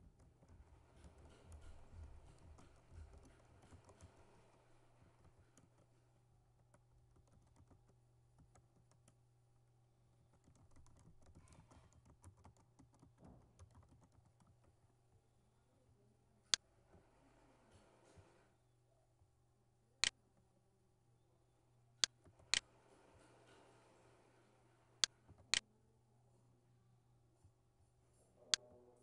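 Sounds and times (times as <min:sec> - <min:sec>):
typing on keyboard: 0:00.0 - 0:09.2, 0:10.2 - 0:14.9.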